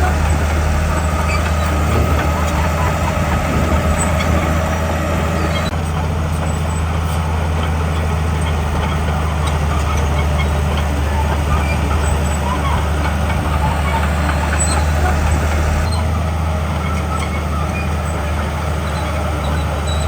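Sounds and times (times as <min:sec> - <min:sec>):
heavy diesel machinery drone: 0:00.0 - 0:20.0.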